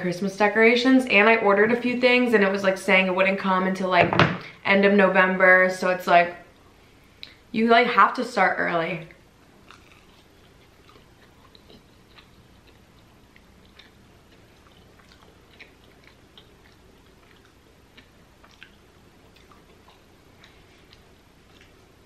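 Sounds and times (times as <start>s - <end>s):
chewing fried pastry: 9.3s - 22.0s.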